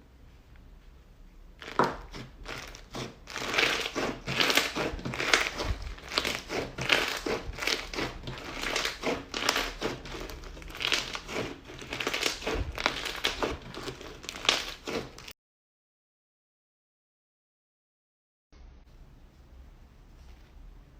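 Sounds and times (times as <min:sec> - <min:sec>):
slime squeezed with crackling pops: 0:01.6 - 0:15.3.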